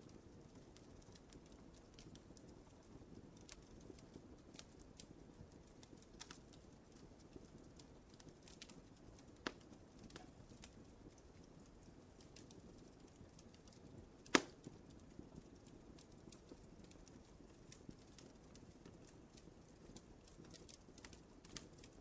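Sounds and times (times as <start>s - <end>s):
low rumble of flames: 0.0s - 22.0s
wood fire crackling: 0.0s - 22.0s.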